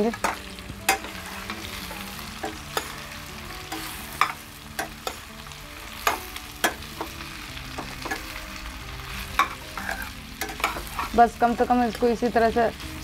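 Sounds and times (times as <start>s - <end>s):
vegetables sizzling in oil: 0.0s - 13.0s
steel spoon scraping pan: 9.3s - 11.2s.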